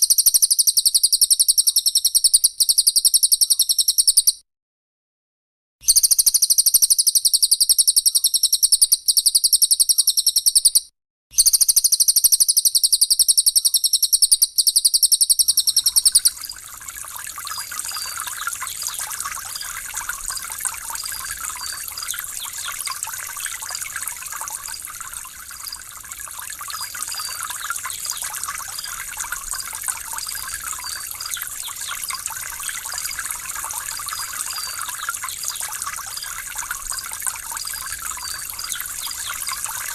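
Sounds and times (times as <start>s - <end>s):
bird high-pitched trill: 0.0s - 4.4s, 5.9s - 20.1s, 20.7s - 25.8s, 26.8s - 29.1s
faint small chirps: 0.0s - 4.4s, 5.8s - 25.8s, 26.8s - 32.8s
trickling water: 14.5s - 39.9s.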